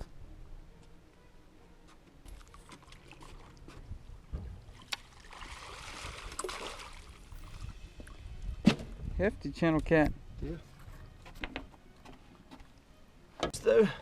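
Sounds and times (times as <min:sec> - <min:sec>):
water splashing: 0:02.3 - 0:08.2.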